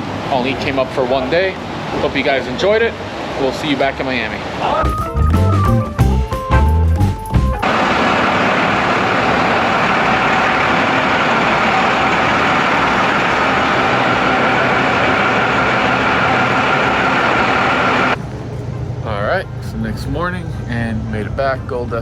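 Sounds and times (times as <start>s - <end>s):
road noise: 0.0s - 5.3s, 7.6s - 22.0s
truck engine droning: 4.8s - 22.0s
faint steady whining tones: 7.6s - 22.0s.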